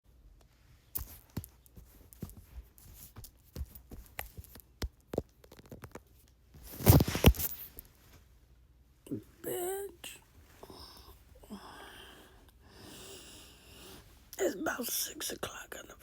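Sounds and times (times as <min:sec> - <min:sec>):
scratchy rustles: 0:01.0 - 0:04.6.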